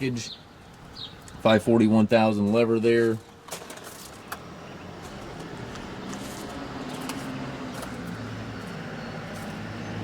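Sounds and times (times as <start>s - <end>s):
tractor diesel engine idling: 4.1s - 10.0s.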